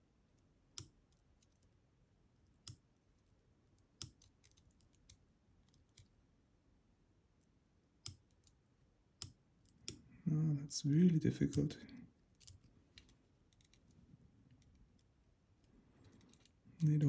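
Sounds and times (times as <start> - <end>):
faint metallic clicks of tweezers: 8.0 - 8.6, 9.2 - 10.0.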